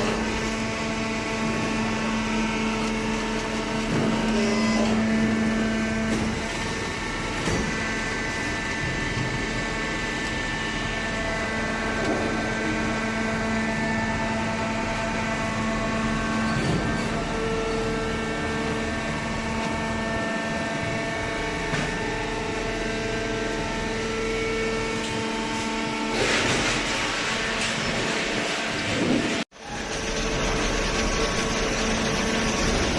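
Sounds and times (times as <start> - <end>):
baler machinery humming: 0.0 - 32.9.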